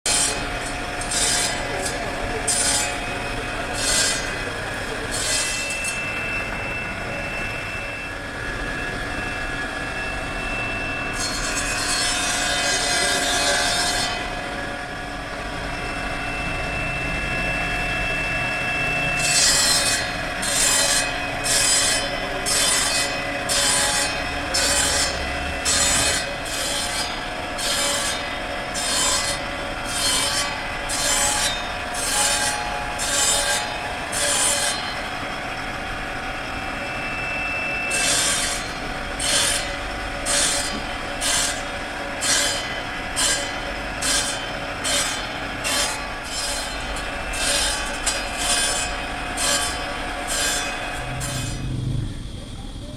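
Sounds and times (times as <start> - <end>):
sawing strokes: 0.1 - 6.3, 11.1 - 14.7, 19.1 - 35.1, 37.9 - 51.6
constant hum: 0.1 - 52.9.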